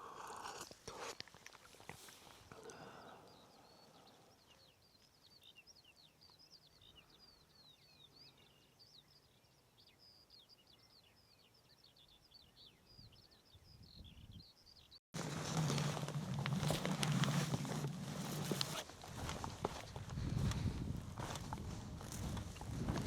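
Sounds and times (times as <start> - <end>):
songbirds singing: 0.9 - 15.0.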